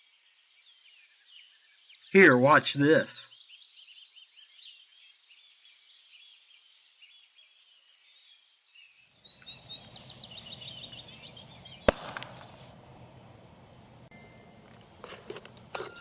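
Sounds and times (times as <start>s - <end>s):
small birds chirping: 0.0s - 16.0s
rough steady noise: 9.4s - 16.0s.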